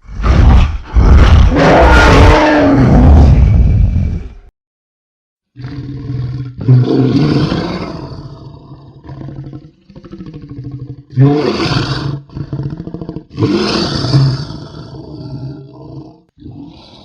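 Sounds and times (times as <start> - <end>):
creature roaring: 0.0 - 4.3, 5.6 - 17.0
creature growling: 0.0 - 4.4, 5.6 - 17.0.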